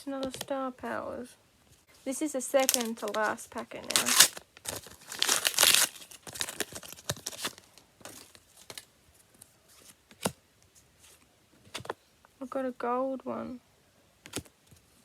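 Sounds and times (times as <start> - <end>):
wrapper crinkling: 2.5 - 8.9
wrapper tearing open: 2.6 - 8.9.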